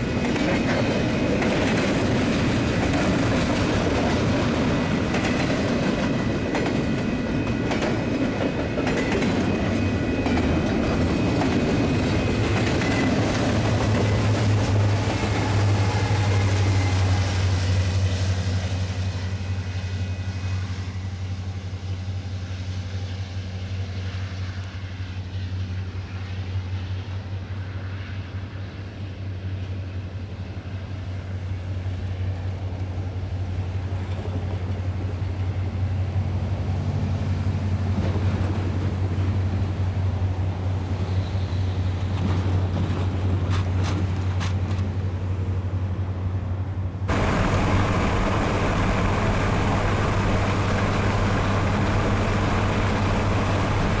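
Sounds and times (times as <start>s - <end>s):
wheels clacking on rails: 0.0s - 18.6s, 31.4s - 45.6s, 47.1s - 54.0s
diesel locomotive engine hum: 0.0s - 54.0s.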